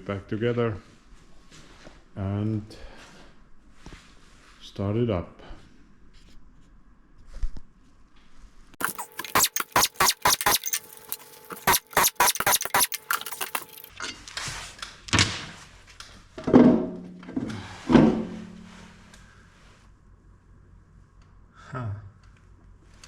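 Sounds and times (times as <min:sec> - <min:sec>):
metal scraping: 0:08.8 - 0:13.9
quick metallic clicks: 0:08.8 - 0:13.9.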